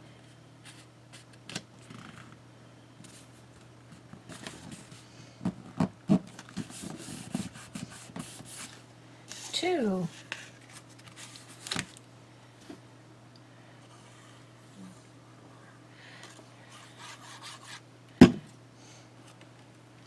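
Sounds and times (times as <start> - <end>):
paper and card rubbed by hand: 6.6 - 8.8, 16.7 - 17.8.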